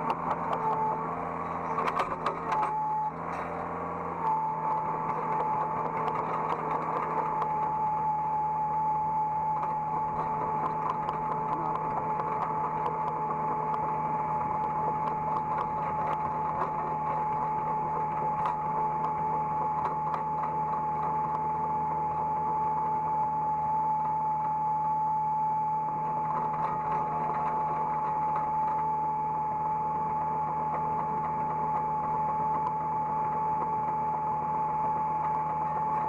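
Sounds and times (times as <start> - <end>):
small clicks and knocks: 0.0 - 1.0, 1.7 - 3.5, 4.2 - 7.7, 9.6 - 21.5
excavator engine hum: 0.0 - 36.0
hydraulic whine: 0.0 - 36.0.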